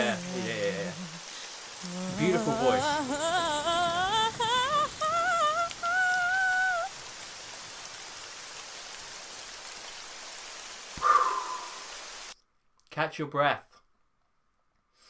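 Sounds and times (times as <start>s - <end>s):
woman singing: 0.0s - 7.0s
rain-like hiss: 0.0s - 12.4s.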